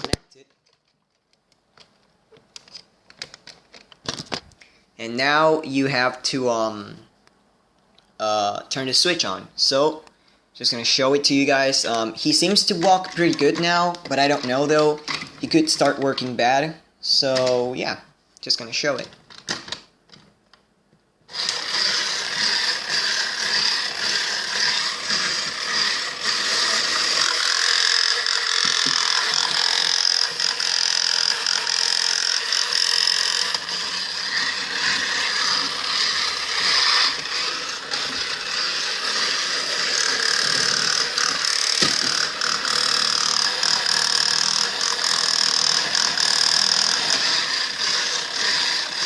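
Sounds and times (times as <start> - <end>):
toy robot motor whirring: 12.2 - 16.0, 21.3 - 49.0.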